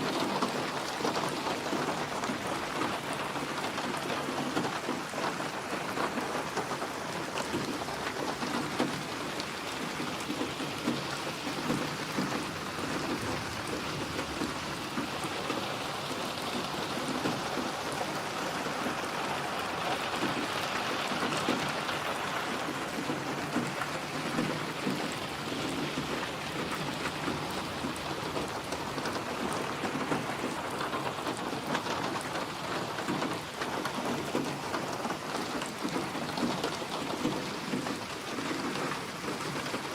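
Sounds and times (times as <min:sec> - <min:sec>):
rain drops pattering: 0:00.0 - 0:39.9
rumble of thunder: 0:12.8 - 0:15.5.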